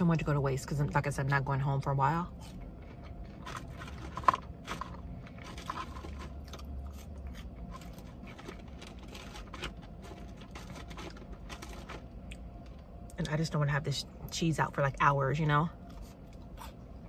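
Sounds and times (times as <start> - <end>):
person chewing food: 5.4 - 9.7.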